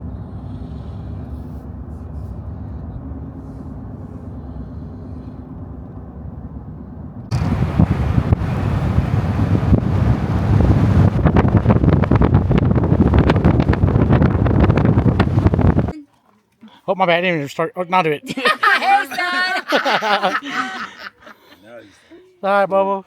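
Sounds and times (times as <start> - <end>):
wind buffeting microphone: 0.0 - 15.9
moving vehicle rumble: 0.0 - 16.8.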